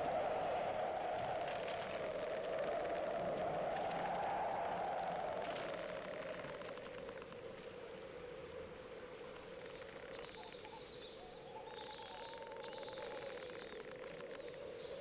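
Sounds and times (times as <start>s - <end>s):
faint bird chirps: 9.6s - 15.0s.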